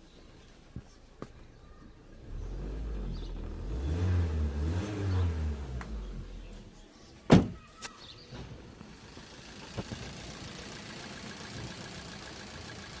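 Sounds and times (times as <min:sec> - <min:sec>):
car engine revs falling: 0:02.2 - 0:06.7
loud thump: 0:07.3 - 0:07.6.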